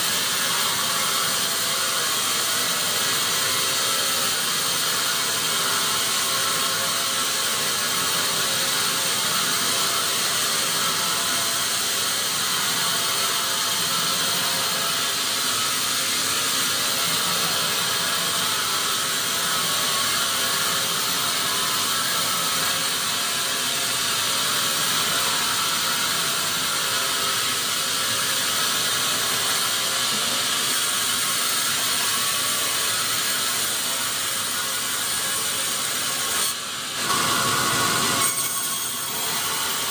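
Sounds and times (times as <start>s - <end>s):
saw cutting wood: 0.0s - 39.9s.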